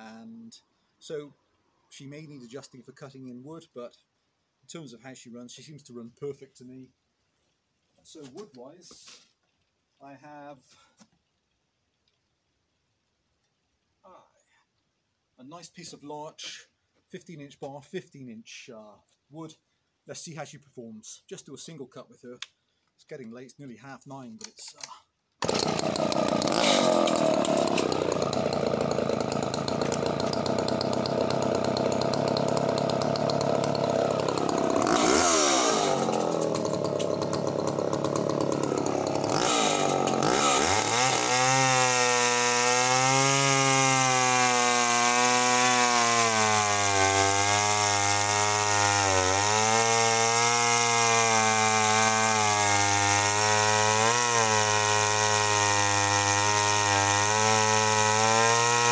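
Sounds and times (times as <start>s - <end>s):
chainsaw cutting through log: 25.4s - 58.9s.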